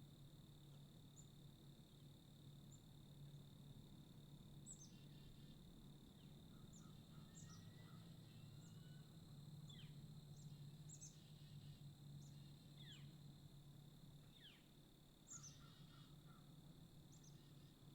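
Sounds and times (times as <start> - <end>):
faint birdsong chirps: 4.5 - 13.3, 14.2 - 17.9.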